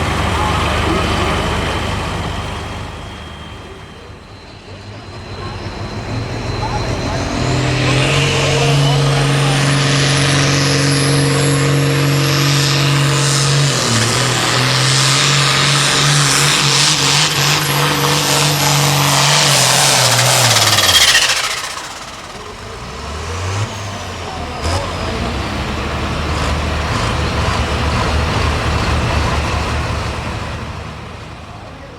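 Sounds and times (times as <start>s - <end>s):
tractor engine at full throttle: 0.0s - 31.9s
high turbo whistle: 1.8s - 24.4s.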